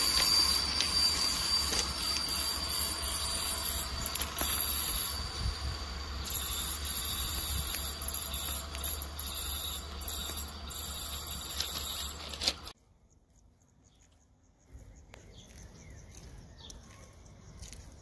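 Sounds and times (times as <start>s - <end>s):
high wheel squeal: 0.0s - 12.8s
train rolling along track: 0.0s - 12.8s.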